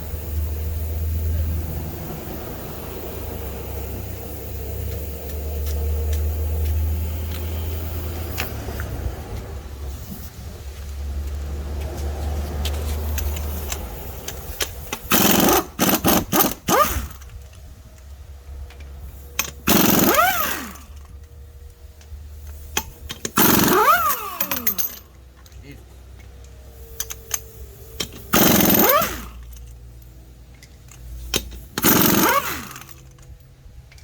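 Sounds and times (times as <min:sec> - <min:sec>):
impact gun rattling bursts: 0:14.4 - 0:17.3, 0:19.4 - 0:21.1, 0:22.8 - 0:25.0, 0:28.0 - 0:29.6, 0:31.3 - 0:33.2.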